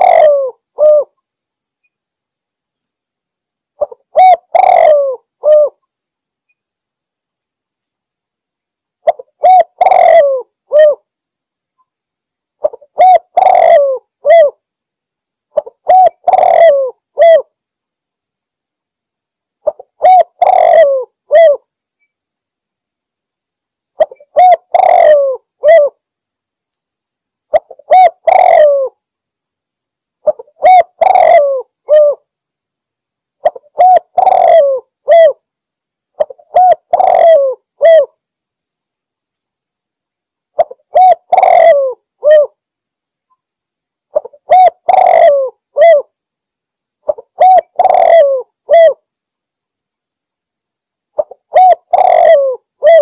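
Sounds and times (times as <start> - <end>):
dove cooing: 0.0 - 1.2, 3.8 - 5.8, 9.0 - 11.0, 12.6 - 14.6, 15.6 - 17.5, 19.6 - 21.6, 24.0 - 26.0, 27.5 - 29.0, 30.2 - 32.2, 33.4 - 35.4, 36.2 - 38.2, 40.6 - 42.6, 44.1 - 46.1, 47.1 - 49.0, 51.2 - 53.0.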